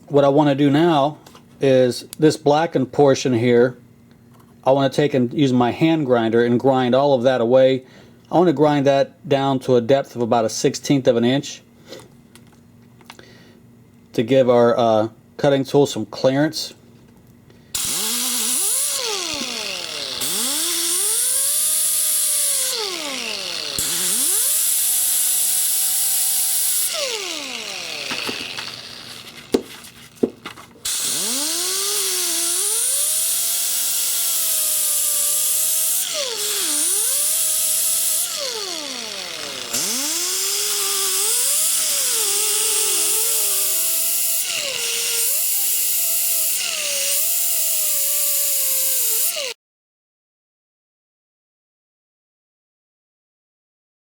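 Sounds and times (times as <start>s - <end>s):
hand grinder grinding metal: 17.8s - 29.6s, 30.8s - 49.6s.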